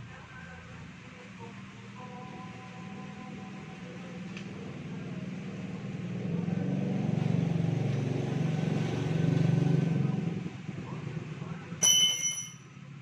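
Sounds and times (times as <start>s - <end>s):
vehicle engine passing by: 2.8s - 11.7s.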